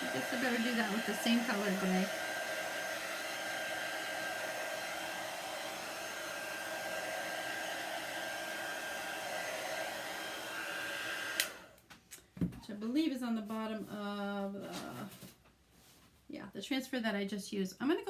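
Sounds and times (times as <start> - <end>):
hair dryer blowing: 0.0 - 11.9.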